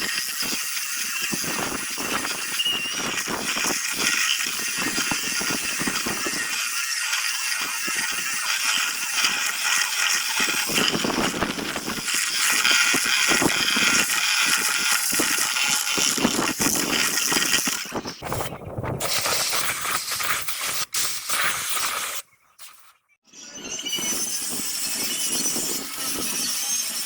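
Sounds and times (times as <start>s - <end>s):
power sander on wood: 0.0s - 18.3s.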